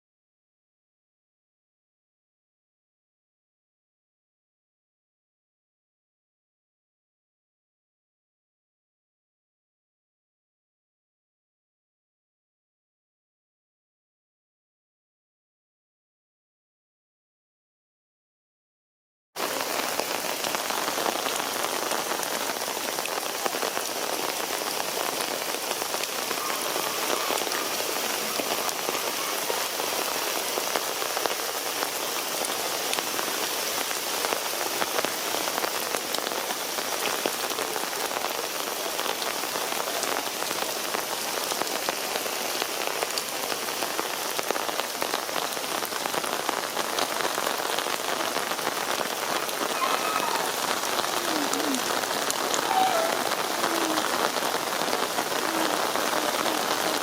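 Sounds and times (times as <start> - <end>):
heavy rain on hard surfaces: 19.4 - 57.0.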